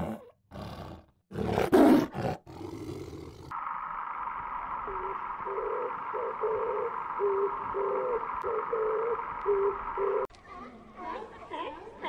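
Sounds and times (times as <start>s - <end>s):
higher gliding animal calls: 4.8s - 10.3s
low hoot-like animal calls: 4.8s - 10.3s.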